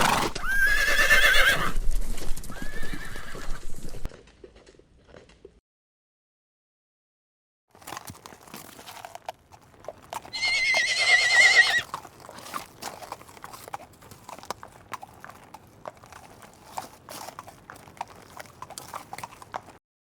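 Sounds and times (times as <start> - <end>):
horse whinnying: 0.0 - 1.8, 2.5 - 3.9, 10.2 - 12.0
hooves clopping on hard ground: 0.0 - 5.6, 7.7 - 19.8.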